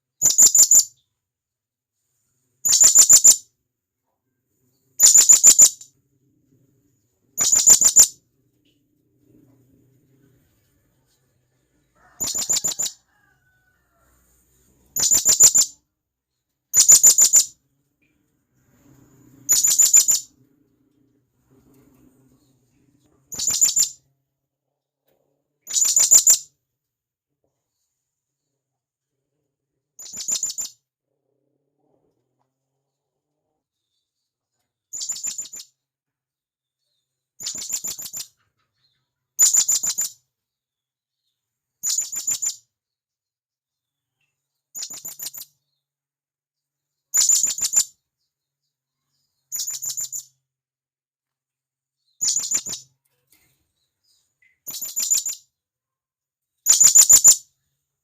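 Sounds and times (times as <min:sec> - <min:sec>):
parrot high-pitched calls: 0:07.4 - 0:08.2, 0:12.0 - 0:13.7, 0:15.0 - 0:15.8, 0:19.5 - 0:20.3, 0:23.3 - 0:24.0, 0:56.7 - 0:57.4.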